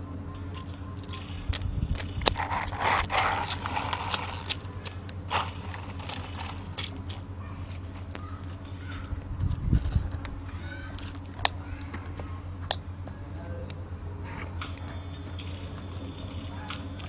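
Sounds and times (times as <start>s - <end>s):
plastic toys clicking and knocking: 0.5s - 9.1s
scraping rush: 2.0s - 8.0s.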